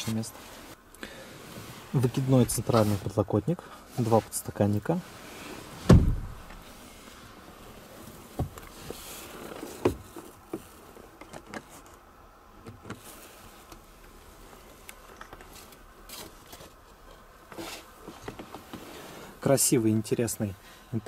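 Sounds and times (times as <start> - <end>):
soft rustling: 0.0 - 12.1.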